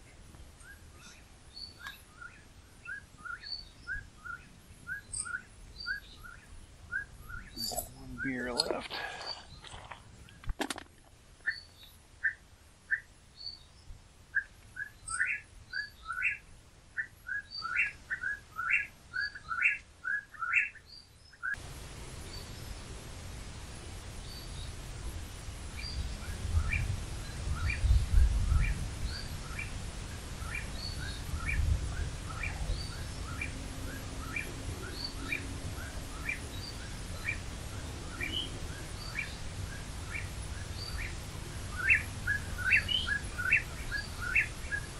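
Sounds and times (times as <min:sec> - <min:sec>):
wind rumbling on microphone: 0:21.6 - 0:44.9.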